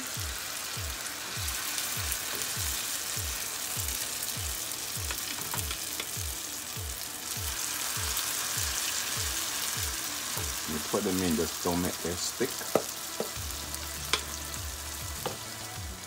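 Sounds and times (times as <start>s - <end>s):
batter sizzling in hot oil: 0.0s - 16.0s.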